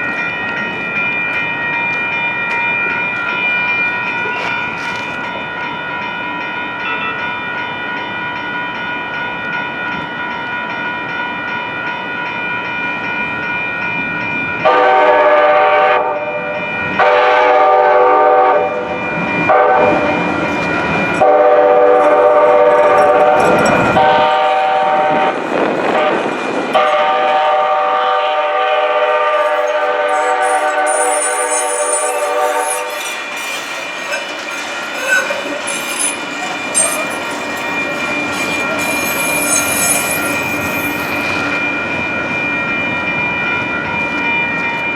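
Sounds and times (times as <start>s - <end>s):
rail noise: 0.0s - 44.9s
train air horn blasts: 14.6s - 18.8s, 19.5s - 20.0s, 21.2s - 23.4s, 24.0s - 26.2s, 26.8s - 33.1s.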